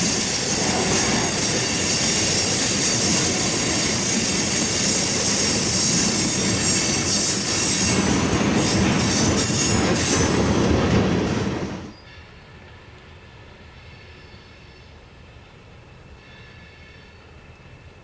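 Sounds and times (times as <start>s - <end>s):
train cars rolling past: 0.0s - 14.5s
steel wheels squealing on rail: 0.0s - 15.1s, 15.8s - 17.8s.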